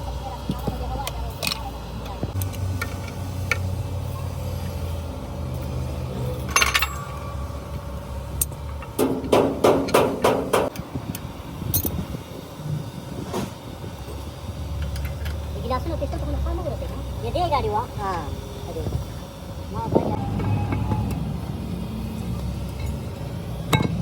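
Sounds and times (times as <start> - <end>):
low engine-like rumble: 0.0 - 24.0.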